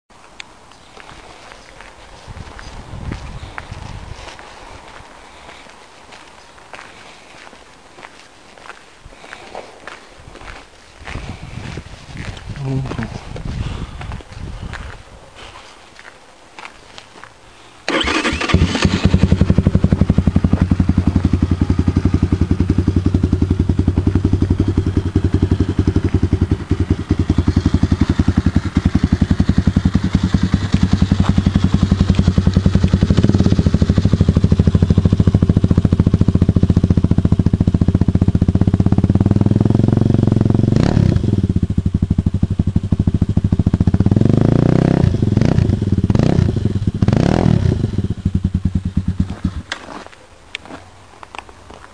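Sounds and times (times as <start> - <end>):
motorbike engine idling and revving: 17.9 - 50.0.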